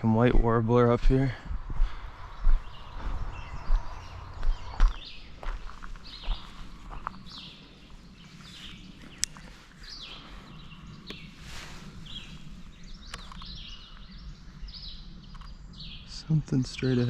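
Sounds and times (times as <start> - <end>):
low background rumble: 0.0 - 8.3
songbirds singing: 0.0 - 17.0.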